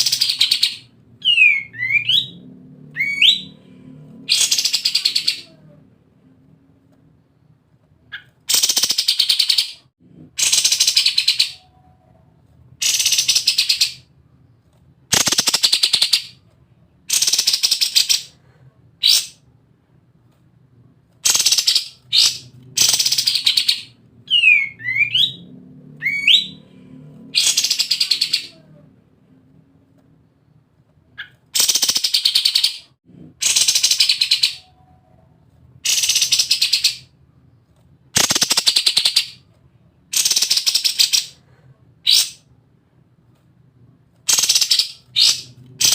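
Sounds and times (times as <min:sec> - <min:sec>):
songbird rattling song: 0:15.1 - 0:16.4, 0:38.1 - 0:39.4, 0:44.3 - 0:45.9.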